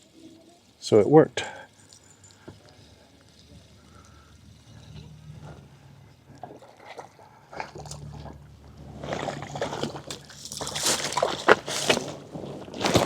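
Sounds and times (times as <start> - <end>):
fish splashing and thrashing in water: 6.2 - 13.0.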